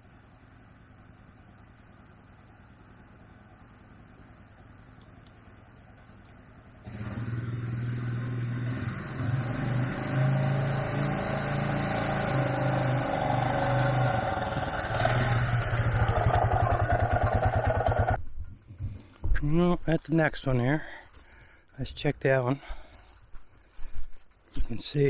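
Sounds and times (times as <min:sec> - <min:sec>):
atv engine running: 0:00.0 - 0:19.2.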